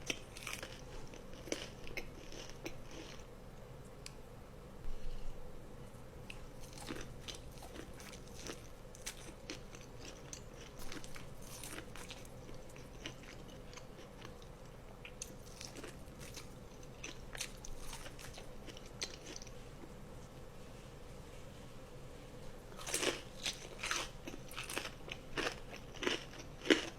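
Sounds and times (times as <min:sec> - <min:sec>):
person chewing crunchy food: 0:00.0 - 0:03.3, 0:06.2 - 0:19.6, 0:22.7 - 0:26.9
faint steady hum: 0:00.0 - 0:26.9.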